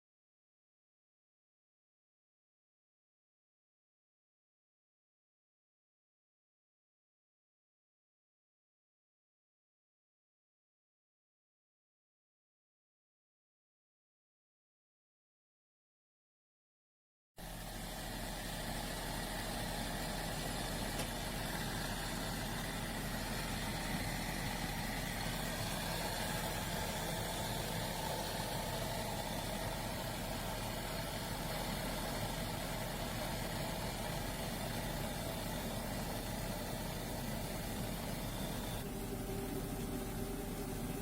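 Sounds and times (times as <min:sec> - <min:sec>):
kettle heating water: 0:17.5 - 0:41.0.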